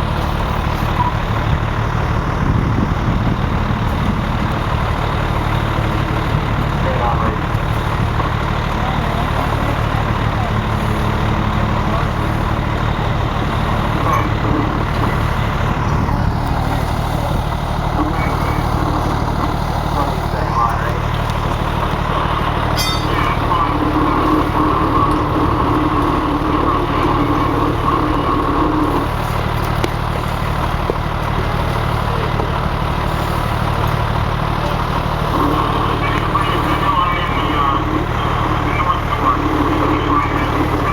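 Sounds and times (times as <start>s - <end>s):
fire engine engine running: 0.0s - 40.9s
high-pitched hum: 17.9s - 29.3s.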